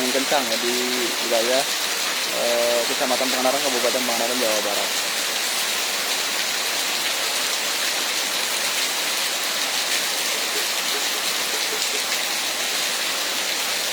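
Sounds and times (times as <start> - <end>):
heavy rain pouring: 0.0 - 13.9.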